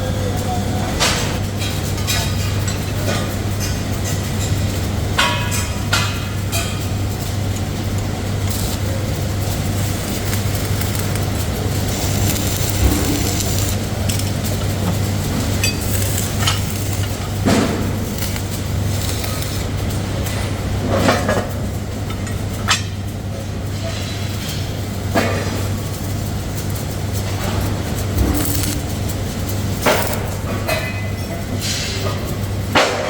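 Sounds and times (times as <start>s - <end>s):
factory machinery humming: 0.0s - 33.0s
metal parts clanking: 7.5s - 19.8s, 27.5s - 31.8s.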